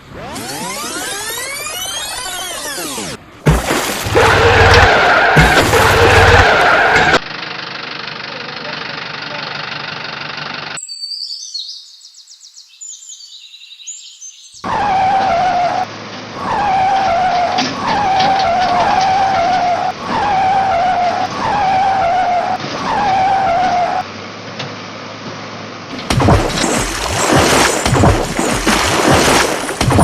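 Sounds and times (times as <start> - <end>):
loud crash: 3.5 - 7.2
vehicle skidding: 3.8 - 7.2, 14.6 - 24.1.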